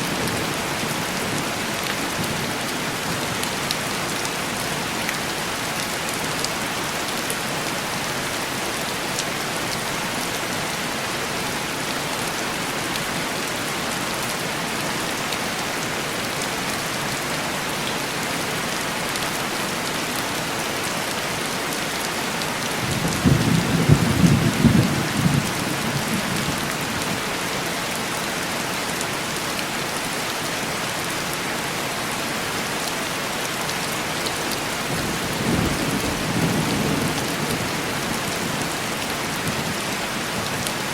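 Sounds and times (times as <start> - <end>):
heavy rain on window glass: 16.8 - 29.9, 33.4 - 40.9.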